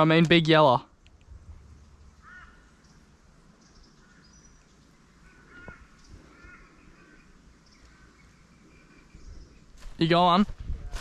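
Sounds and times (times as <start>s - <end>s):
birds chirping and calling: 1.6s - 10.4s.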